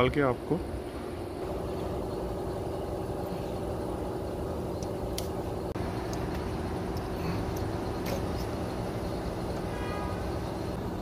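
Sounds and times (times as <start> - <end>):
low mechanical drone: 0.0 - 11.0.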